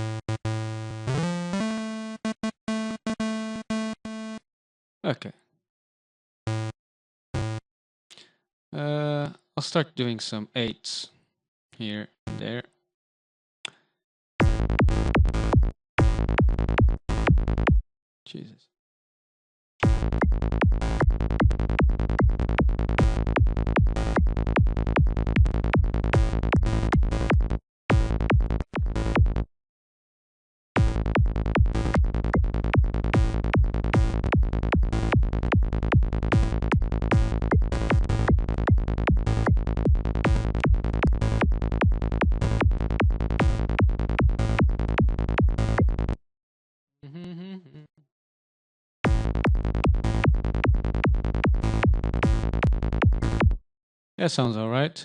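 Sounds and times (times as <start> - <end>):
synthesizer lead pulsing notes: 30.8 - 46.2.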